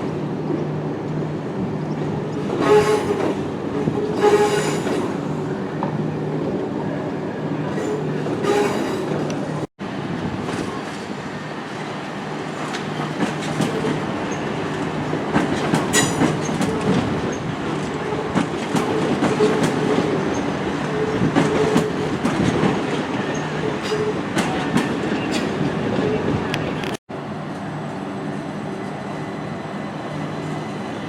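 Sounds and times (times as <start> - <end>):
train rumbling: 0.0 - 31.0.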